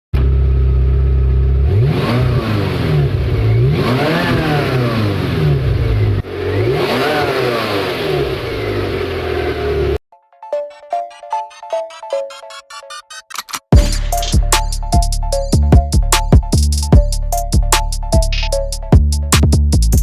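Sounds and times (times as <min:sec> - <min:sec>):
car engine idling and revving: 0:00.2 - 0:10.0
music: 0:10.1 - 0:20.0.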